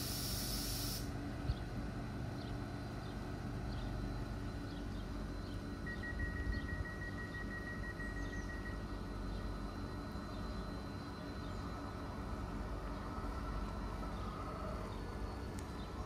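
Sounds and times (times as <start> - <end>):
train rumbling: 0.0 - 16.0
bird chirps: 3.0 - 9.5
high steady tone: 5.2 - 12.9.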